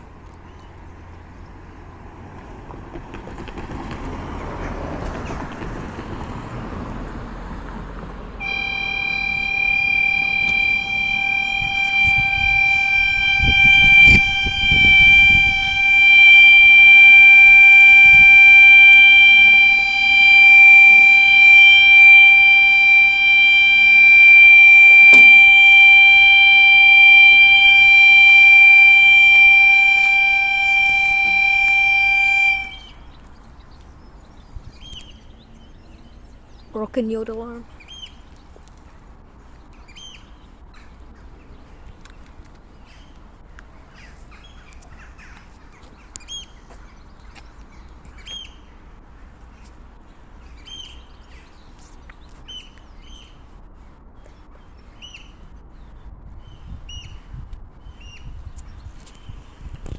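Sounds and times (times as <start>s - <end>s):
level crossing alarm tone: 8.4s - 33.0s.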